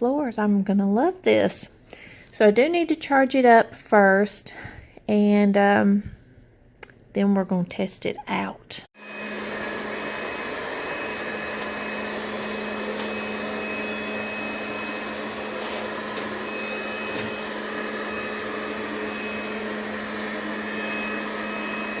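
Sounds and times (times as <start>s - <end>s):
robot vacuum cleaner whirring: 9.0s - 22.0s.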